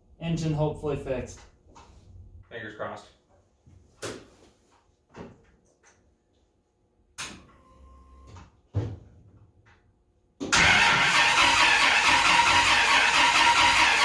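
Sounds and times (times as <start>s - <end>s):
engine cranking without firing: 10.5s - 14.0s.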